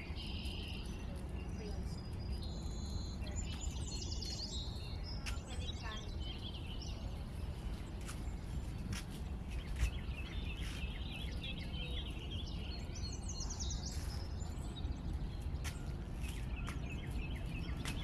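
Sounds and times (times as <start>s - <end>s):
birds chirping: 0.0s - 18.0s
low outdoor rumble: 0.0s - 18.0s.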